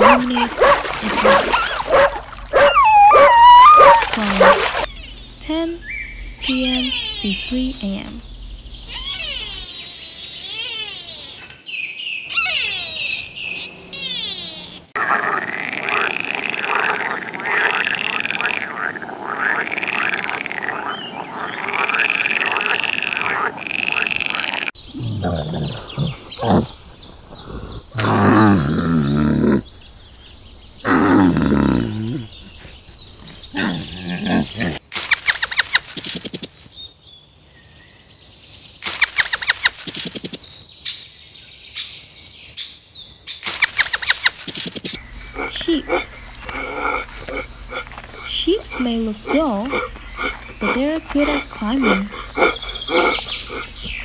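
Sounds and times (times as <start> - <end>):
frog chorus calling: 12.3 - 24.8, 43.5 - 53.9
low frog croaks: 14.6 - 26.8, 44.9 - 53.9
fast clicks: 43.5 - 45.0.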